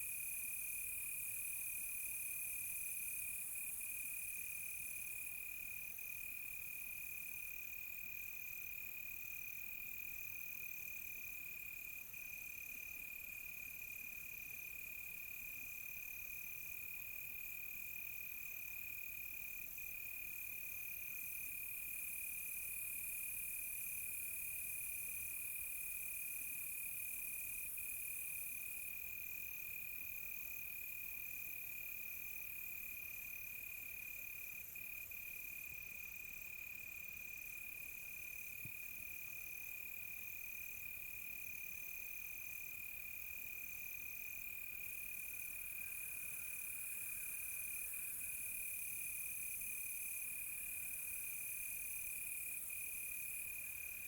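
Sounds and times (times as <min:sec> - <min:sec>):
cricket pulsing chirps: 0:17.8 - 0:54.0
high insect hiss: 0:43.2 - 0:54.0.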